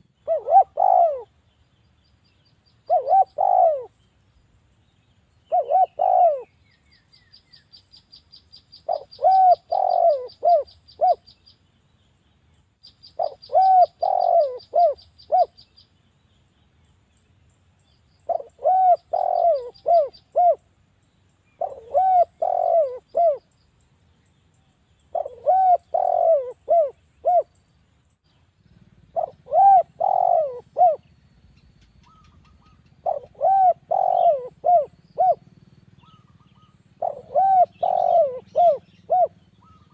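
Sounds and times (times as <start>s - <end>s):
dove cooing: 0.0s - 1.4s, 2.9s - 4.0s, 5.5s - 6.6s, 8.8s - 11.3s, 13.2s - 15.6s, 18.2s - 20.7s, 21.6s - 23.5s, 25.1s - 27.5s, 28.8s - 31.1s, 31.7s - 39.9s
small bird ticking trill: 0.0s - 39.9s.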